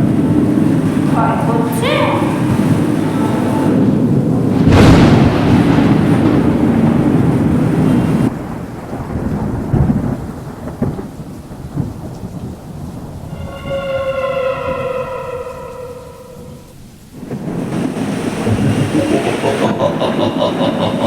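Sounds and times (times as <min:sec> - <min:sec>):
rain: 0:00.0 - 0:21.0
thunder rumbling: 0:00.0 - 0:21.0
falling pitched tone: 0:13.3 - 0:17.0.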